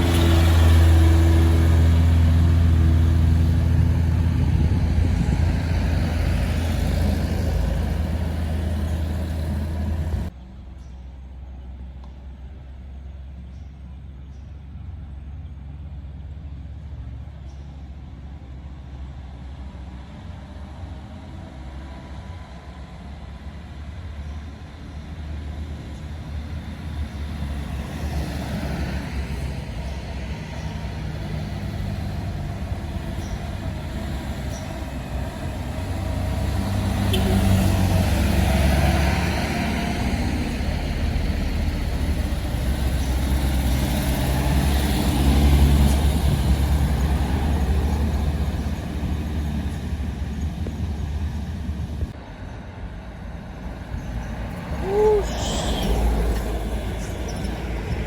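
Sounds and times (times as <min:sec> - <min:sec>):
truck engine revving: 0:00.0 - 0:10.3, 0:26.3 - 0:52.1.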